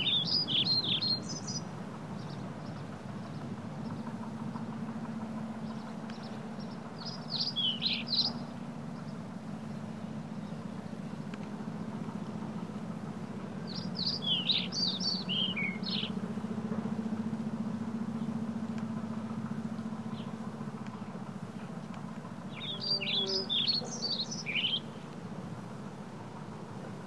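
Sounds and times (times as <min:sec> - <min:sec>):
songbird singing high quick notes: 0:00.0 - 0:01.6, 0:07.0 - 0:08.4, 0:13.7 - 0:16.1, 0:22.5 - 0:24.9
steady low hum: 0:00.0 - 0:27.0.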